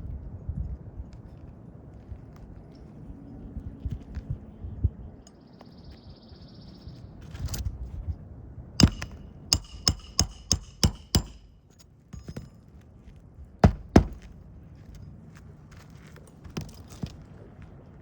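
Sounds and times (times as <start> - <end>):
hammer striking metal pry bar: 8.8 - 12.6, 13.6 - 14.3.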